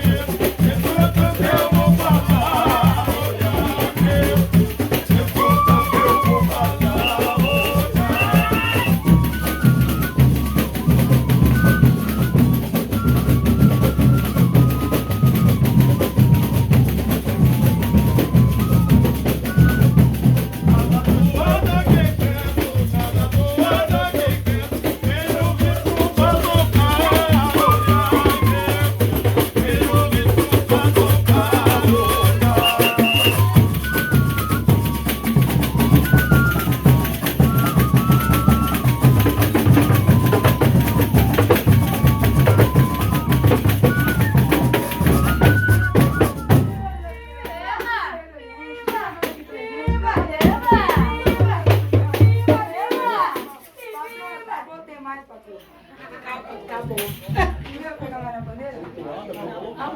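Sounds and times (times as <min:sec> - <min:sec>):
drums and percussion beat: 0:00.0 - 0:48.2, 0:48.9 - 0:54.2, 0:56.8 - 0:58.8
voices singing: 0:00.0 - 0:55.0
stepping melody line: 0:04.7 - 0:21.5, 0:30.9 - 0:46.7.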